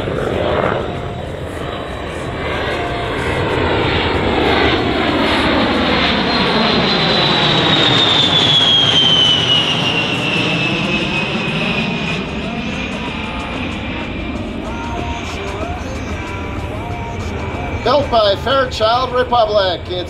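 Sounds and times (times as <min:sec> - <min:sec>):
high jet whine dropping in pitch: 0:00.0 - 0:20.0
jet engine rush: 0:00.0 - 0:20.0.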